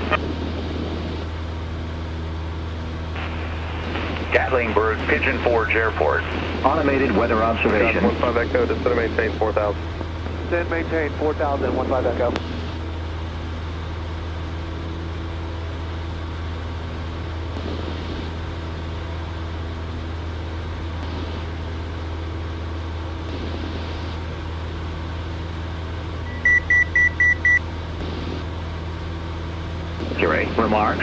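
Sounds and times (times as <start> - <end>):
small plane engine drone: 0.0 - 31.0
short high electronic beeps: 26.3 - 27.6.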